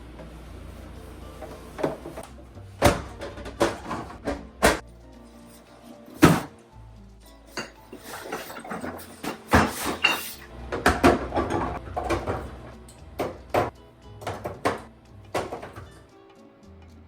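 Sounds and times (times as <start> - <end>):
background music: 0.0 - 17.0
kitchen containers knocking and clinking: 1.4 - 4.8, 5.5 - 6.6, 7.4 - 16.0.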